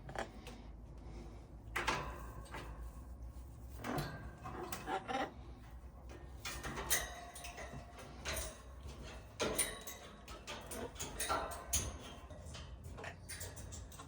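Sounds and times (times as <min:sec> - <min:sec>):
parrot clambering knocks and clicks: 0:06.1 - 0:14.0.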